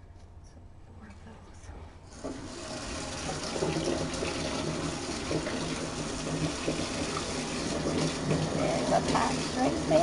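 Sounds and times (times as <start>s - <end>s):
tap water filling a basin: 2.1s - 10.0s.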